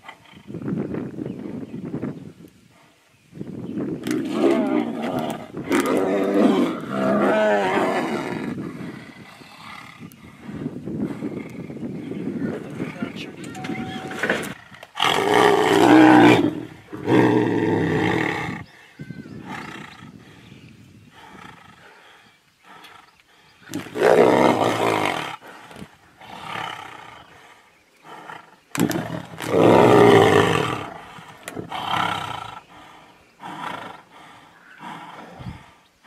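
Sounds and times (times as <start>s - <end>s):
tigers roaring: 4.0s - 10.2s, 12.7s - 18.6s, 23.7s - 35.7s.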